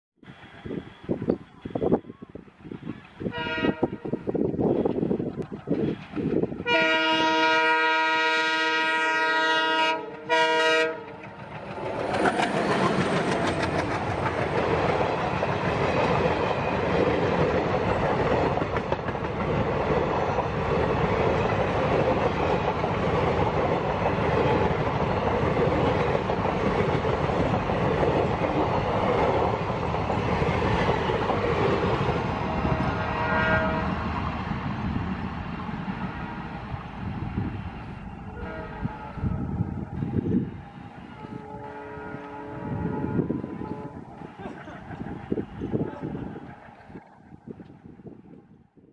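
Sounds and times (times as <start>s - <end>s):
locomotive air horn: 2.8s - 5.1s, 6.6s - 11.2s, 32.5s - 34.1s, 38.3s - 39.5s, 41.0s - 44.6s
train wheels clattering over joints: 11.0s - 32.4s.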